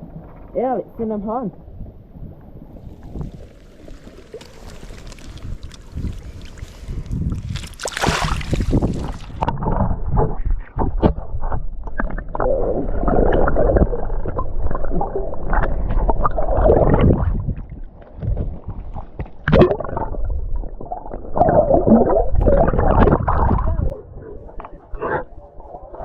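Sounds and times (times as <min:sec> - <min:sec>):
wind buffeting microphone: 0:00.4 - 0:19.2, 0:21.4 - 0:26.0
sea water sloshing around rocks: 0:02.6 - 0:20.2.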